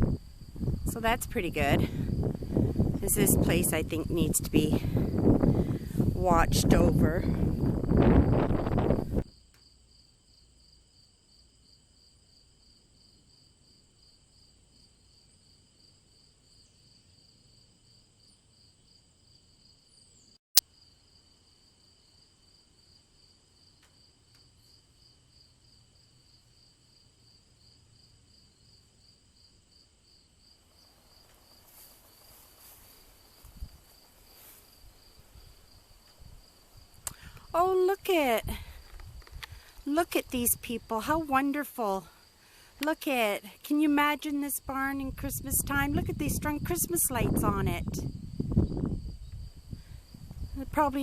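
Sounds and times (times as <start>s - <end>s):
crickets chirping: 0.0s - 51.0s
soft rustling: 30.9s - 37.0s.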